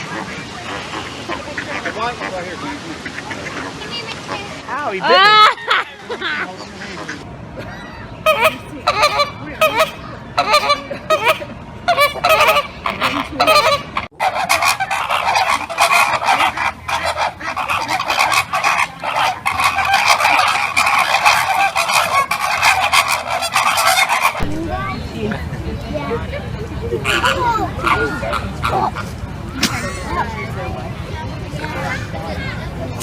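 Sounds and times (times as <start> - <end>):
flamingos honking: 0.0 - 4.6, 8.2 - 25.6, 26.9 - 29.2.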